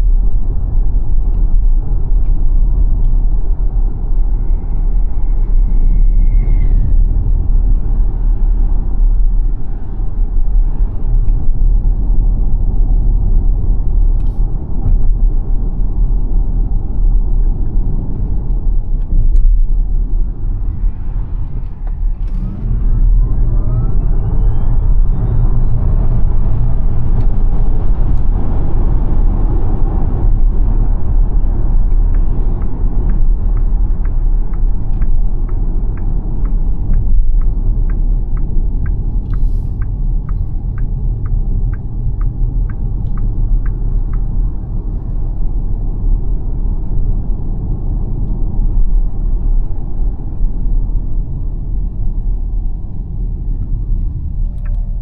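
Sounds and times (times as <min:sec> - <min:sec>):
road and wind rumble in car: 0:00.0 - 0:55.0
turn signal ticking: 0:30.2 - 0:46.5.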